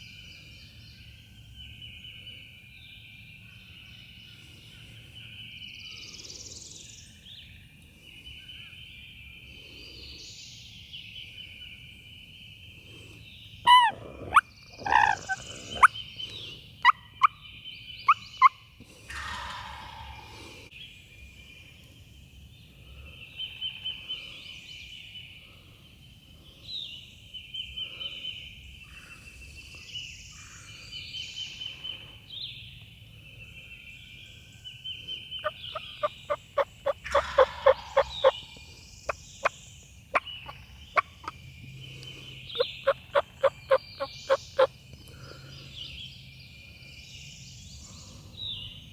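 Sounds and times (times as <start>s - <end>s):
turkey gobbling: 13.7s - 15.9s, 35.4s - 38.6s, 40.1s - 41.4s, 42.5s - 44.7s
sharp yelp-like calls: 13.7s - 16.0s, 35.4s - 38.7s, 42.5s - 44.7s.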